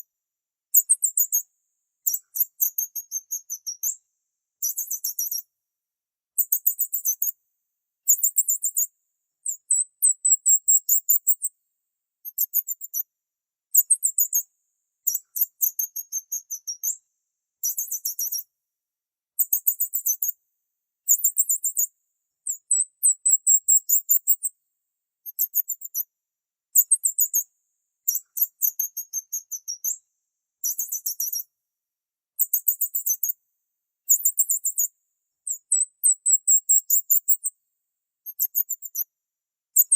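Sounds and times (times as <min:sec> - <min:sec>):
small birds chirping: 0:00.7 - 0:04.0, 0:04.6 - 0:05.5, 0:06.4 - 0:07.4, 0:08.0 - 0:11.5, 0:12.2 - 0:13.1, 0:13.7 - 0:17.0, 0:17.6 - 0:18.5, 0:19.4 - 0:20.4, 0:21.0 - 0:24.5, 0:25.2 - 0:26.1, 0:26.8 - 0:30.0, 0:30.6 - 0:31.5, 0:32.4 - 0:33.4, 0:34.0 - 0:37.5, 0:38.2 - 0:39.1.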